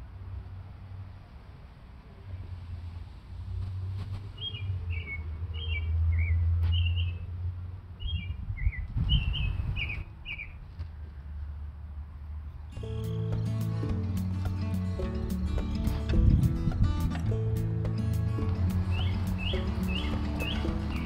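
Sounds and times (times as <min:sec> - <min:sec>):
small songbird chirping: 0:04.4 - 0:07.3, 0:08.0 - 0:10.6, 0:12.7 - 0:21.0.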